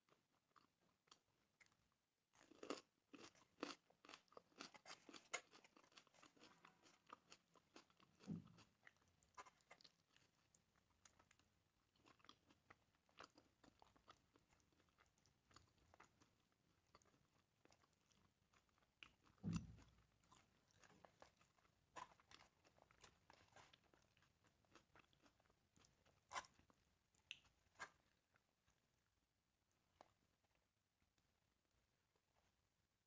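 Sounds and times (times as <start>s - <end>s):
chewing and mouth smacks: 2.4s - 28.8s.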